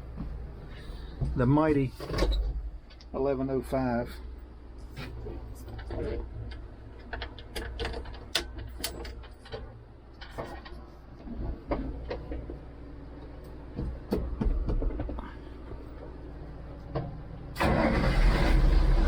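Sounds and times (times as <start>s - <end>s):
diesel tractor idling: 3.8s - 19.0s.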